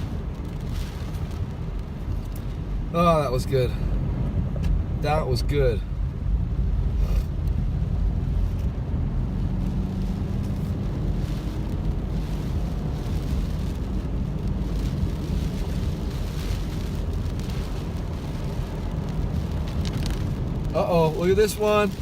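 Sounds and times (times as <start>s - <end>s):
car engine and tyres rumbling: 0.0s - 22.0s
water hissing under car: 9.5s - 22.0s.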